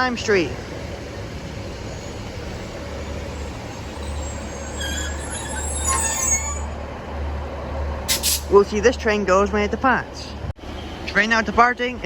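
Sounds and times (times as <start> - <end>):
diesel train hum: 0.0 - 12.0
faint high-pitched train squeals: 1.7 - 6.8.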